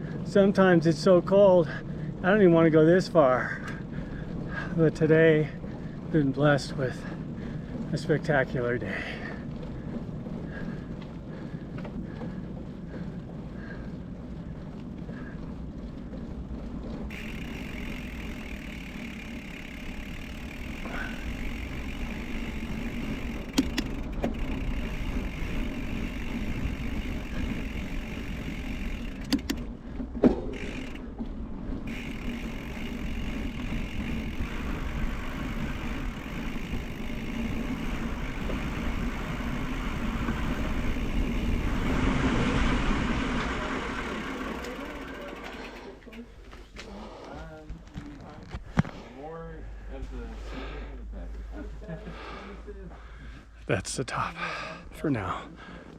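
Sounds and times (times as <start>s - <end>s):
bicycle road noise: 0.0s - 55.9s
sharp clicks: 23.3s - 24.6s, 29.0s - 29.7s.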